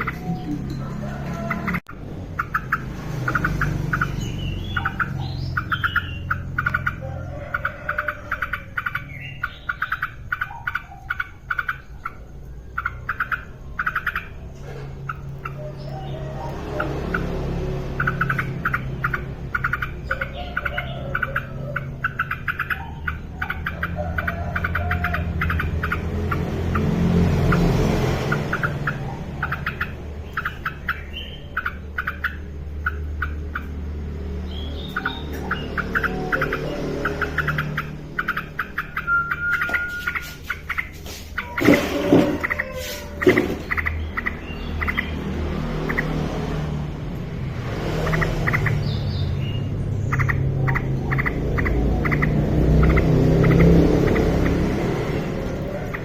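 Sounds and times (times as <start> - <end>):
bird calling clipped notes: 37.5 - 45.0
higher bird whistle: 38.8 - 43.4.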